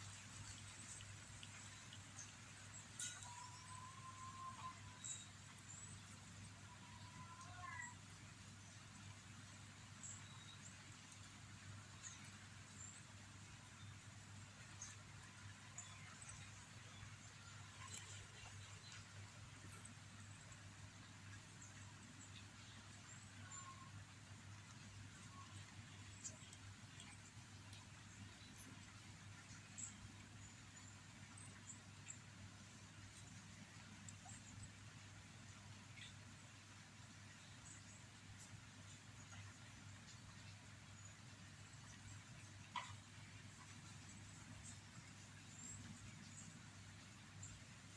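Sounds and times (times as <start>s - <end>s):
faint high chirps: 3.0s - 6.1s.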